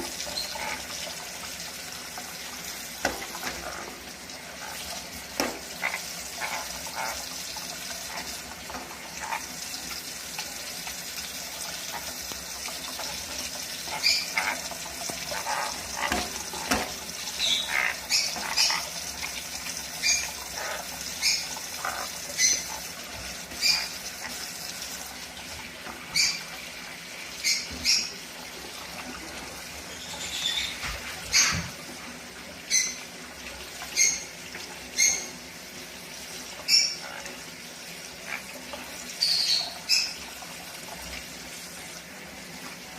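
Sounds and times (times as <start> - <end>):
parrot chirping and squeaking: 13.8 - 16.2, 17.3 - 18.9, 20.0 - 22.8, 23.6 - 24.0, 26.1 - 26.4, 29.9 - 31.6, 32.7 - 33.0, 35.0 - 35.3, 39.2 - 40.2.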